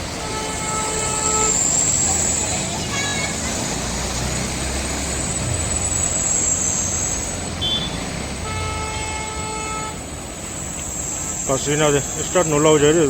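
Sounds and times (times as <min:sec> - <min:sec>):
vehicle horn: 0:00.0 - 0:03.3, 0:07.5 - 0:10.1
vehicle engine rumbling: 0:00.0 - 0:13.0.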